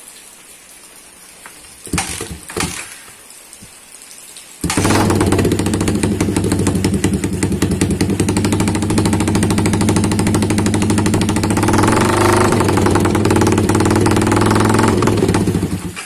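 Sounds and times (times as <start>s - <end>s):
motorcycle engine with choppy beat: 4.6s - 16.0s.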